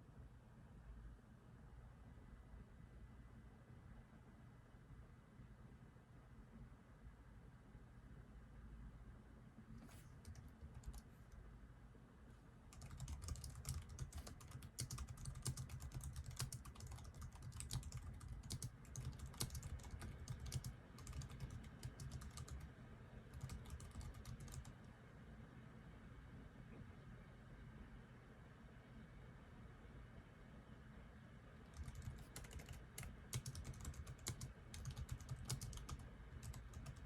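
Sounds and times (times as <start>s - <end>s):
low steady hum: 0.0s - 37.0s
keyboard typing: 9.8s - 11.2s, 12.7s - 22.7s, 23.3s - 24.8s, 31.7s - 37.0s.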